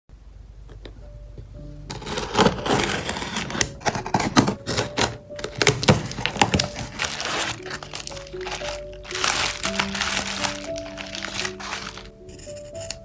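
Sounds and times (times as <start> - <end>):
packaging crinkled and torn: 1.9 - 12.2.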